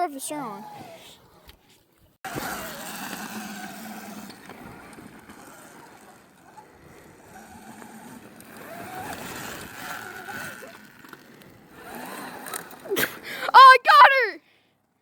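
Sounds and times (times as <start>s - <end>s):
motorcycle engine revving: 2.3s - 13.2s.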